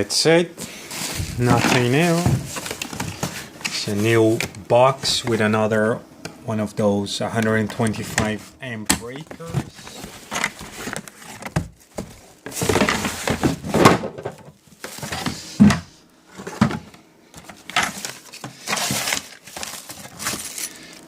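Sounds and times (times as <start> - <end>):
packaging rustling: 0.6 - 5.2, 9.1 - 13.8, 14.5 - 15.4, 16.3 - 21.0.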